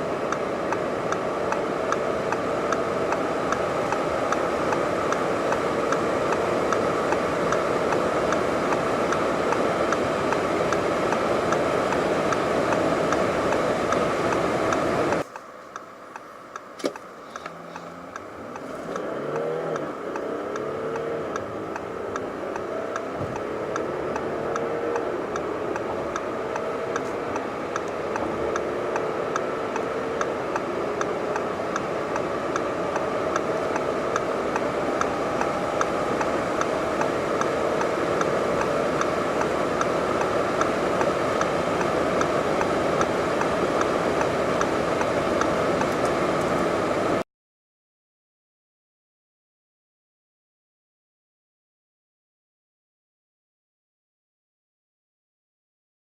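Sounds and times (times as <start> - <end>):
car engine running hard: 0.0 - 47.2
road noise: 0.0 - 47.2
faint regular ticking: 0.2 - 46.6.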